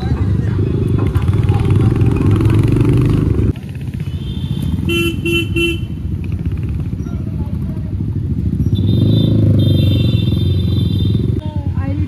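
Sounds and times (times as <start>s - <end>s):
motorcycle rumbling: 0.0s - 12.0s
street traffic: 0.0s - 12.0s
vehicle horn toots: 4.2s - 6.0s, 8.8s - 11.4s.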